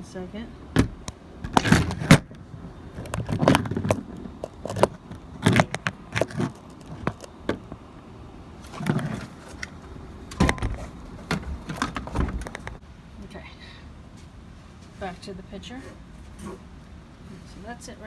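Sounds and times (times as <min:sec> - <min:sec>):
pressure washer knocking and rattling: 0:00.7 - 0:07.9
scraping: 0:00.7 - 0:07.9, 0:08.6 - 0:12.8.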